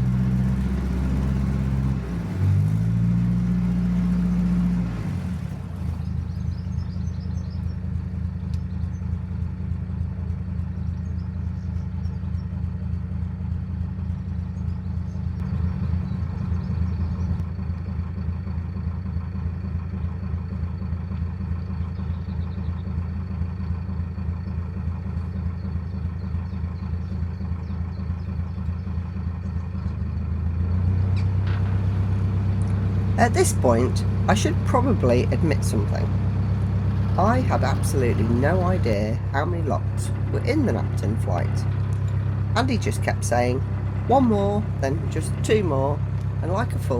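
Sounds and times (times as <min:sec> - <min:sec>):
diesel boat engine running: 0:00.0 - 0:46.9.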